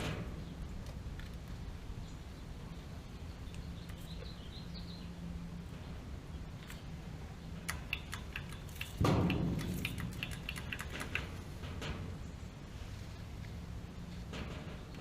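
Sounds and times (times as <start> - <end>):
light metallic clicks and rattles: 7.6 - 12.2.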